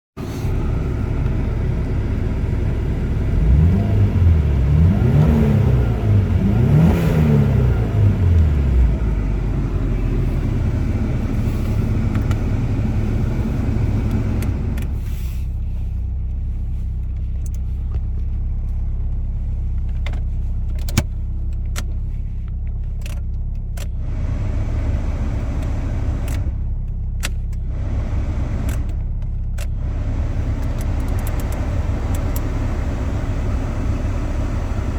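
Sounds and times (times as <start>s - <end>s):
car engine revving and idling: 0.2s - 34.9s
dashboard control clicks: 20.0s - 22.0s.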